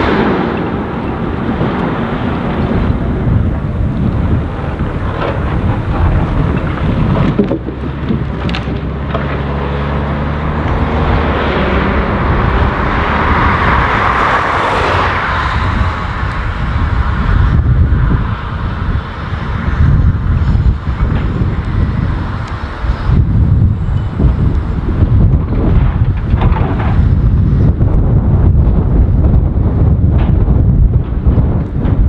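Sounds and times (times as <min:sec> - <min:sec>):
diesel engine running: 0:00.0 - 0:32.0
rushing noise: 0:00.0 - 0:32.0.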